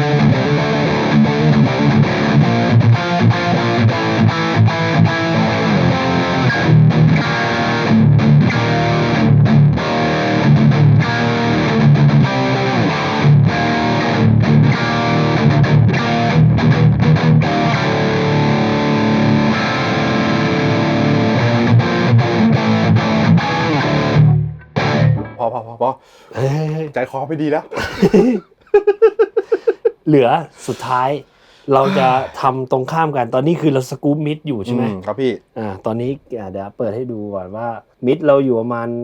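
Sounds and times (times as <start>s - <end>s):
distorted electric guitar riff: 0.0s - 25.4s.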